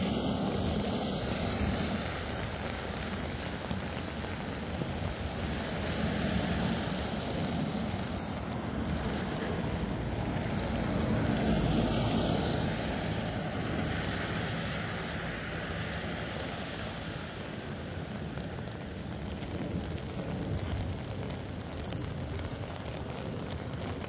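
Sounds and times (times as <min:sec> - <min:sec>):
car tyres hissing on wet road: 0:00.0 - 0:24.0
steady rain: 0:00.0 - 0:24.0.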